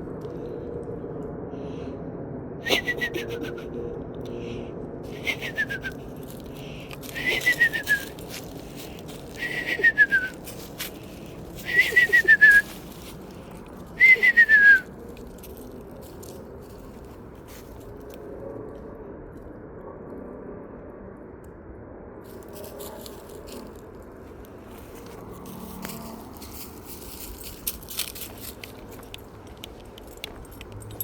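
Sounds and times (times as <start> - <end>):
person whistling owl call: 2.6 - 3.7, 5.1 - 6.0, 7.1 - 8.2, 9.3 - 10.5, 11.6 - 12.7, 14.0 - 14.9.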